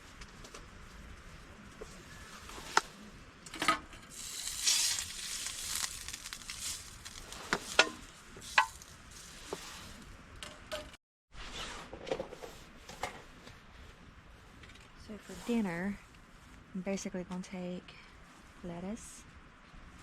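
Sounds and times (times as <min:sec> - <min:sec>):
packaging rustling: 0:04.2 - 0:07.4.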